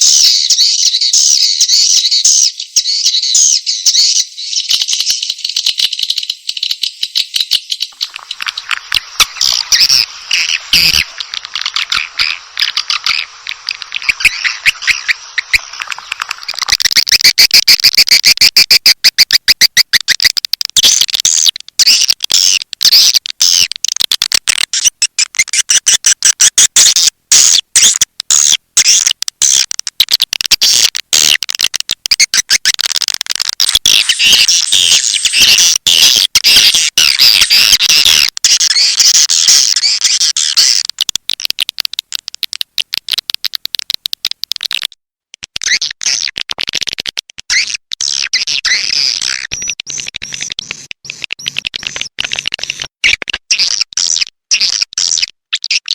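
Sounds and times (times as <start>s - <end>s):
high chirping and twittering of swiftlets: 0.0s - 23.8s, 33.7s - 41.0s.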